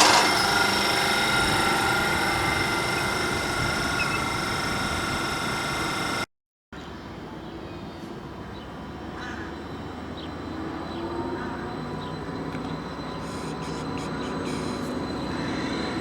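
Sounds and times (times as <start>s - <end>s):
train whine and rushing: 0.0s - 6.2s, 9.6s - 16.0s.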